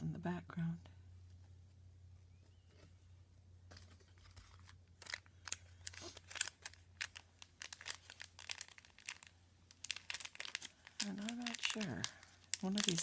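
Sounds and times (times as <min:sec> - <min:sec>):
faint low hum: 0:00.0 - 0:13.0
packaging crinkling: 0:03.8 - 0:13.0.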